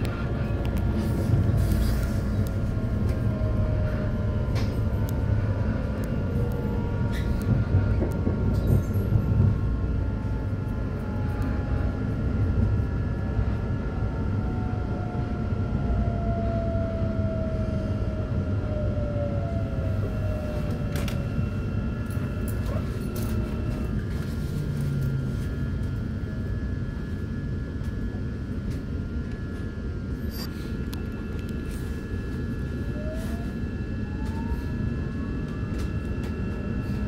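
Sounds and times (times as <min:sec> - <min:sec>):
train wheels rumbling on rails: 0:00.0 - 0:15.2
train motor whine: 0:00.0 - 0:26.6, 0:27.8 - 0:37.0.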